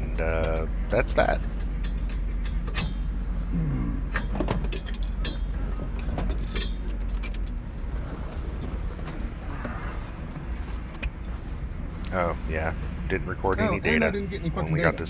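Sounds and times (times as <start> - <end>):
low rumble in car cabin: 0.0 - 15.0
metallic clinks and rattles: 4.1 - 9.4.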